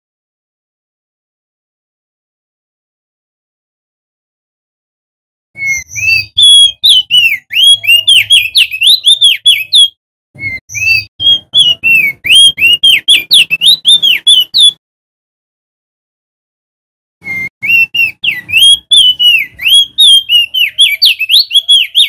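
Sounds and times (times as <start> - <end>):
bird singing whistled notes: 5.6 - 14.8, 17.2 - 22.0.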